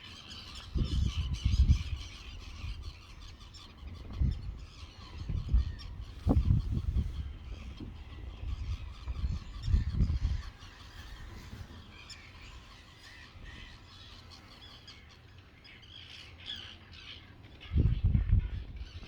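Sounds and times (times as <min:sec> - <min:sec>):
low buffeting rumble: 0:00.7 - 0:15.1.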